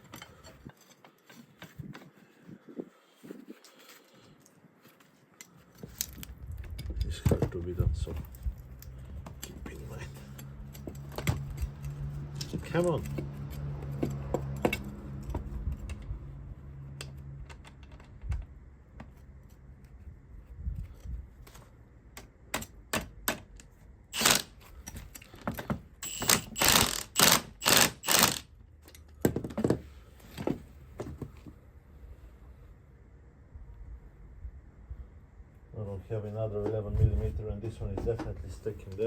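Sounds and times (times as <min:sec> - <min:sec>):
ratchet wrench clicking: 0:24.2 - 0:24.5, 0:26.0 - 0:28.5.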